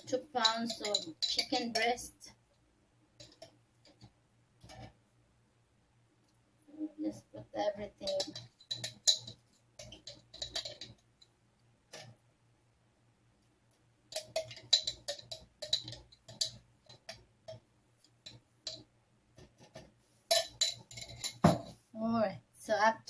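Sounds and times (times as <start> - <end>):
spoon clicking against container: 0.5 - 1.8, 14.1 - 18.8.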